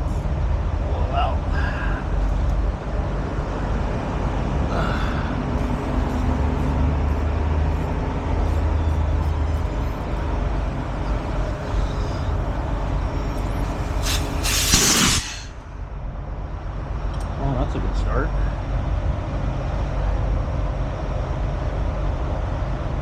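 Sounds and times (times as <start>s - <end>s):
truck engine idling: 0.0s - 23.0s
compressed air hiss: 14.0s - 15.7s.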